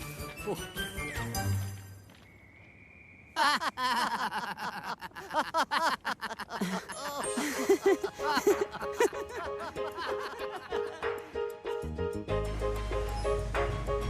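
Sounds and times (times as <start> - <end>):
lively cartoon music: 0.0 - 1.8, 6.9 - 14.0
bouncy laughter-like voices: 3.4 - 11.0.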